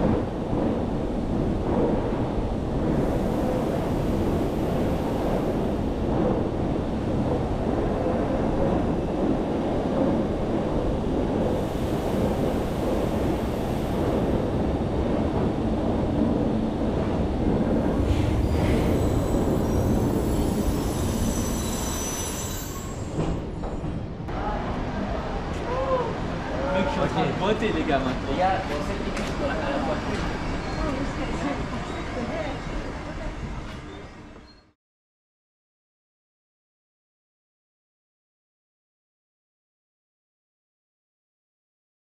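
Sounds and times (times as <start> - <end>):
train wheels rumbling: 0.0 - 24.3
high-pitched squeals: 18.0 - 23.5.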